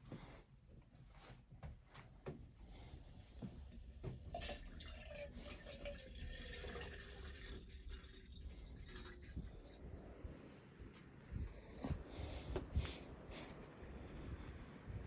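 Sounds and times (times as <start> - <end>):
water pouring: 3.6 - 10.0.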